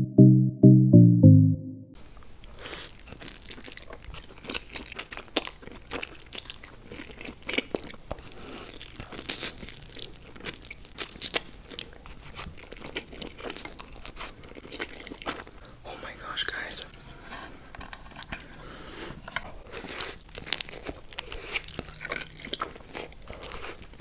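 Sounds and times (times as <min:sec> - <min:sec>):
chewing and crunching: 0:02.4 - 0:15.8, 0:17.4 - 0:24.0.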